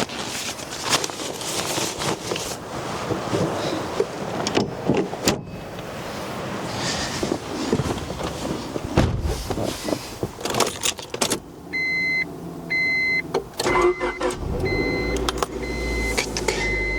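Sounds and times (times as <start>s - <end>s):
handling clatter and clicks: 0.0s - 5.1s, 9.5s - 11.5s
low engine-like rumble: 11.0s - 16.9s.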